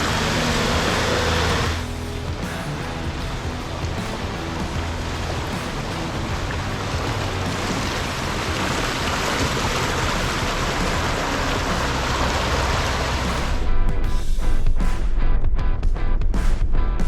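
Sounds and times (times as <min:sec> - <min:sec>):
flowing water rushing: 0:00.0 - 0:13.6
strummed guitar music: 0:00.0 - 0:17.0.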